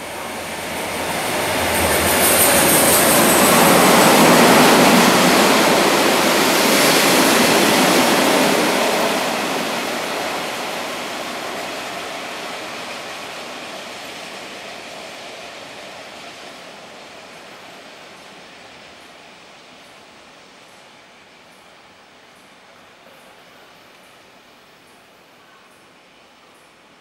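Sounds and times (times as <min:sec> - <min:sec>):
diesel locomotive engine: 0:00.0 - 0:20.6
wheels rushing on rail: 0:00.0 - 0:25.3.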